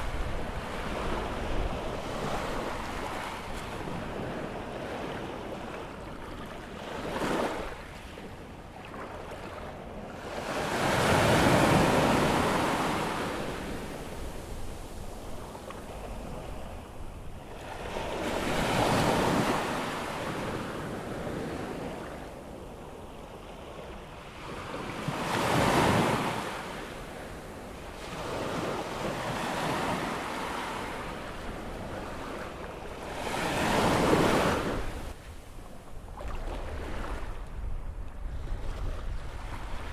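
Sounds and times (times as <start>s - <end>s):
wind noise on microphone: 0.0s - 5.6s, 11.0s - 19.6s, 33.5s - 39.9s
waves breaking on beach: 24.4s - 37.5s.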